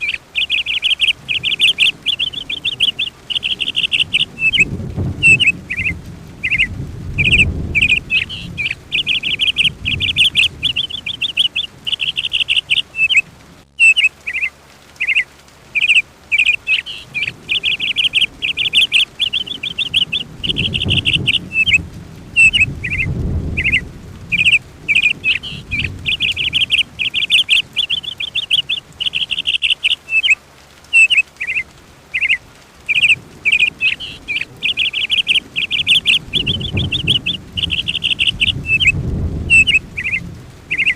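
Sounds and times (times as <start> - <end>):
songbird trilling and chirping: 0.0 - 13.2, 13.8 - 15.2, 15.8 - 21.8, 22.4 - 40.9
low rumble: 1.1 - 13.7, 17.0 - 27.2, 33.2 - 40.9.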